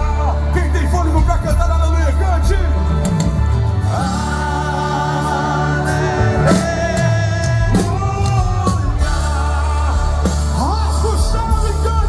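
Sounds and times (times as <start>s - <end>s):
bass and drums: 0.0s - 12.0s
voices singing held notes: 2.6s - 12.0s.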